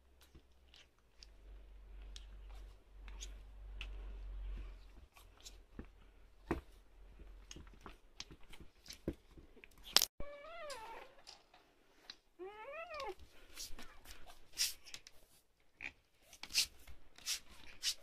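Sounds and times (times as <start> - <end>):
puppy whine: 10.2 - 11.2.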